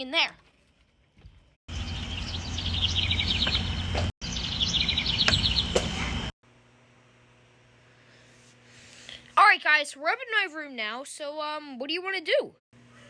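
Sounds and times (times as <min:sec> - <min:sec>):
birds chirping in trills: 0:01.7 - 0:06.3.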